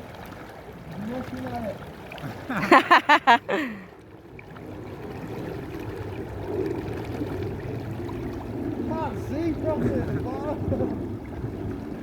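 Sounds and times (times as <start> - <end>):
stream rushing: 0.0 - 4.0.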